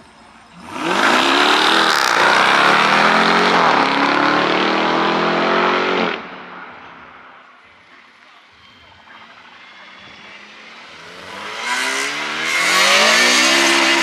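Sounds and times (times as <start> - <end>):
car accelerating hard: 0.6 - 6.7, 10.8 - 14.0.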